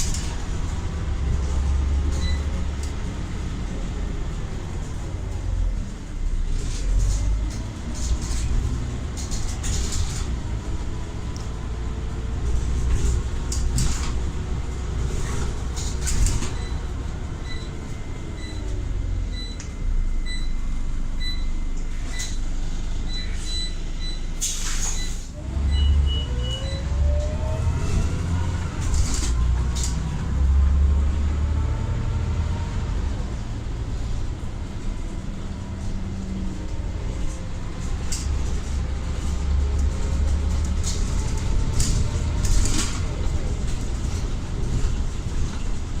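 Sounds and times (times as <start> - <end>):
bus gearbox whine: 12.6 - 30.0
regular beeping: 16.5 - 22.4
air brake hiss: 24.4 - 25.3.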